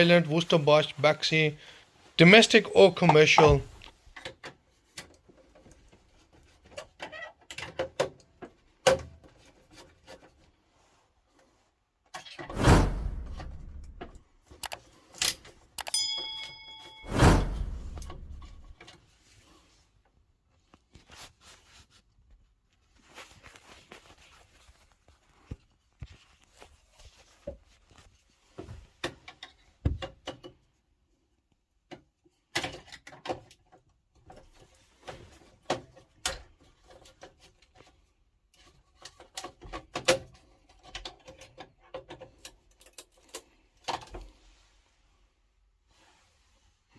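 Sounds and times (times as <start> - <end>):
heavy thunk: 12.5 - 14.1, 17.1 - 18.7
tools clicking and rattling: 13.8 - 17.0
brief metallic ring: 15.8 - 18.1.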